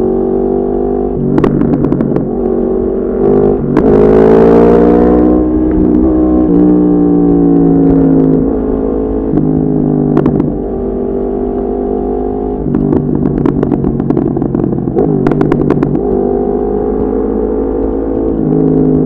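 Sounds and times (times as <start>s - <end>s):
motorcycle engine riding: 0.0s - 19.0s
exhaust crackles: 12.5s - 16.2s.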